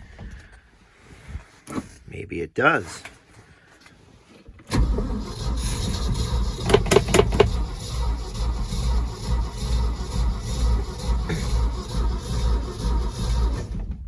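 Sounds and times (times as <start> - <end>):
truck engine rumbling: 4.7 - 14.0
engine knocks: 4.8 - 14.0.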